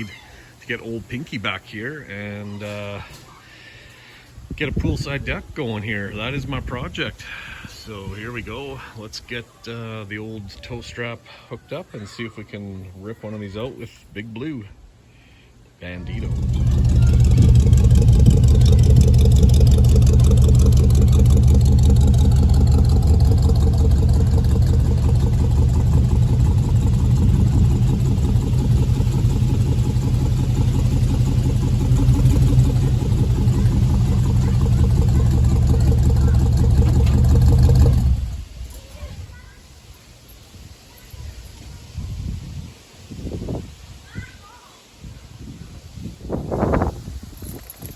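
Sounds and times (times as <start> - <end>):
vehicle engine running: 16.0 - 38.6.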